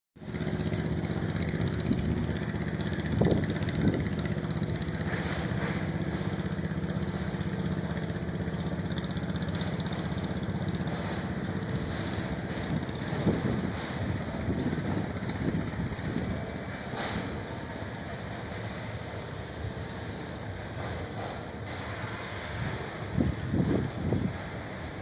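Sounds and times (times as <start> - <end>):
boat engine running: 0.2 - 25.0.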